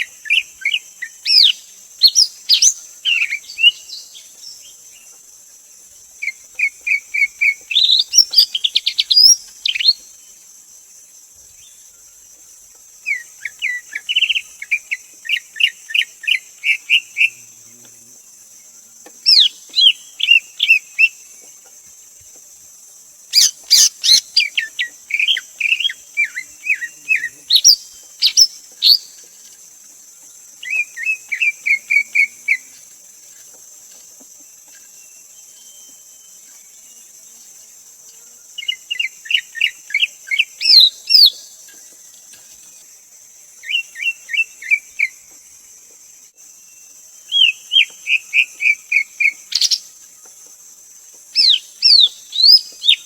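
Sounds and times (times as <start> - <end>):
bird singing whistled notes: 0.0 - 4.3, 6.2 - 10.1, 23.4 - 29.2, 34.8 - 36.9, 38.6 - 41.5, 43.6 - 45.3, 46.6 - 49.9, 51.4 - 53.0.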